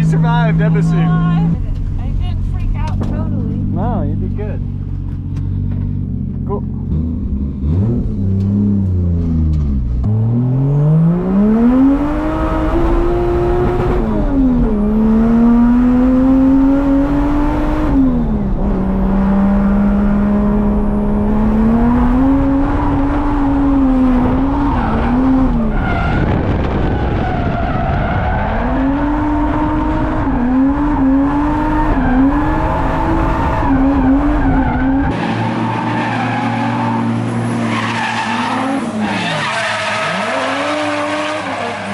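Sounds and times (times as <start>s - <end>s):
car engine revving: 0.0s - 41.9s
tyres skidding and squealing: 22.1s - 41.9s.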